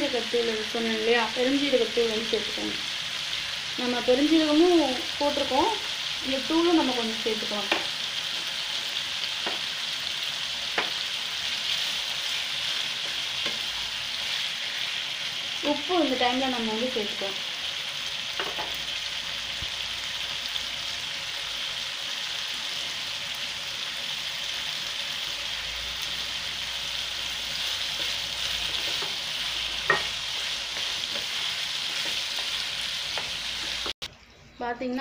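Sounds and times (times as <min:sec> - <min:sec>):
food sizzling in oil: 0:00.0 - 0:34.1
spatula stirring: 0:27.3 - 0:34.0.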